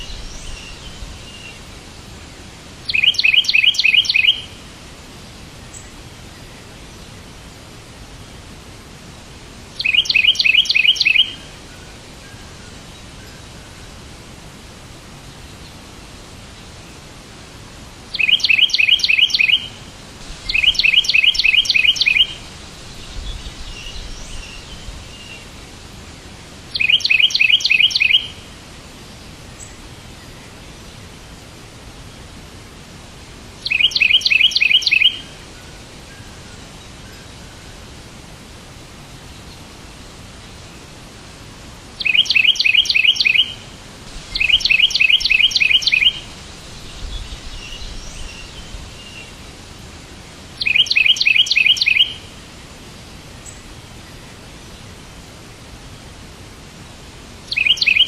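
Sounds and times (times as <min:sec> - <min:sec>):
songbird singing: 0:00.0 - 0:55.8, 0:57.4 - 0:58.0
steady hiss: 0:00.0 - 0:58.0
faint bird chirps: 0:02.9 - 0:04.6, 0:09.8 - 0:13.7, 0:18.1 - 0:19.8, 0:20.4 - 0:25.6, 0:26.7 - 0:28.5, 0:33.6 - 0:37.9, 0:42.0 - 0:43.7, 0:44.3 - 0:49.5, 0:50.6 - 0:52.3, 0:57.5 - 0:58.0.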